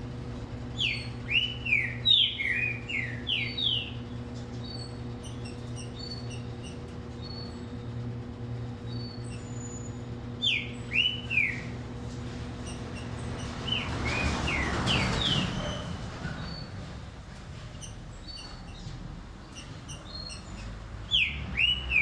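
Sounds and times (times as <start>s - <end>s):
steady low hum: 0.0s - 22.0s
bird singing whistled phrases: 0.8s - 4.0s, 8.9s - 11.8s, 21.1s - 22.0s.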